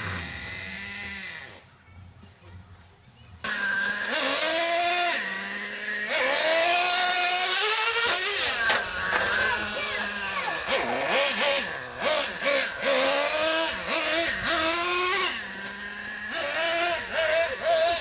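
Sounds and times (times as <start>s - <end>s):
small engines revving high: 0.0s - 1.6s, 3.4s - 18.0s.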